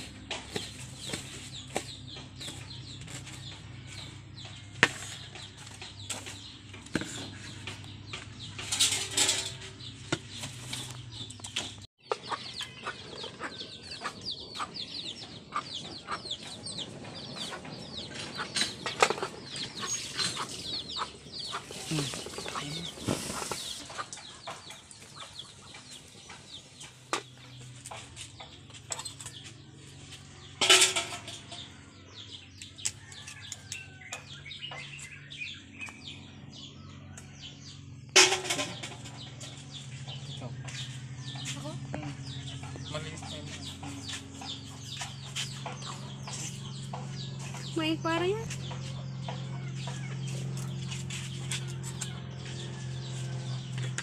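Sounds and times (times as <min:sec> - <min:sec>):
chickens clucking: 0:00.0 - 0:35.1, 0:35.8 - 0:54.0.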